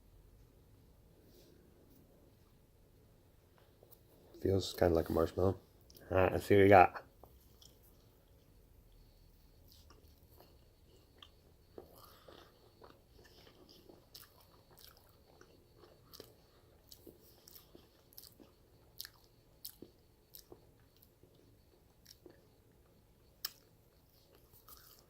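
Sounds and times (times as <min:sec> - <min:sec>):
low room hum: 0:00.0 - 0:25.0
chewing marshmallow: 0:07.2 - 0:25.0
wet mouth clicks and smacks: 0:23.4 - 0:23.7.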